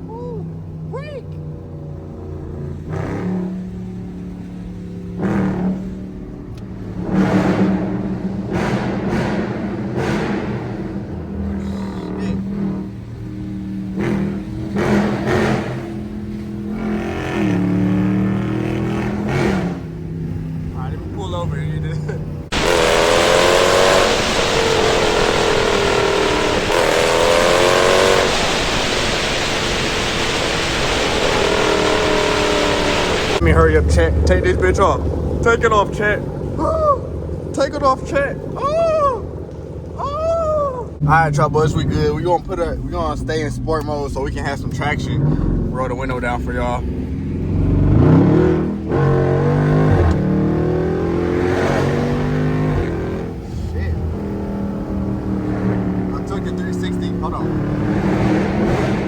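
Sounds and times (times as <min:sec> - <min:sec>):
engine and exhaust running: 0:00.0 - 0:59.0
tyre spray on wet road: 0:22.5 - 0:33.4
wind rushing: 0:22.5 - 0:33.4.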